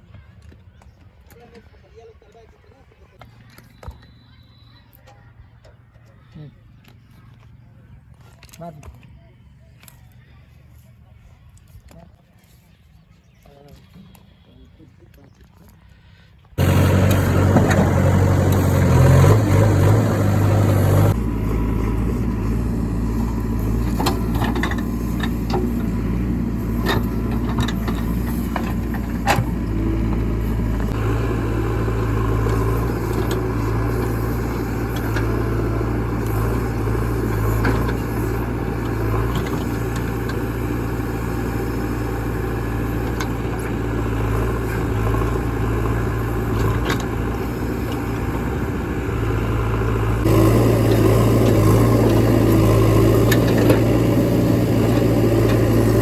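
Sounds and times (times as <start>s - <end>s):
diesel engine running: 16.6s - 56.0s.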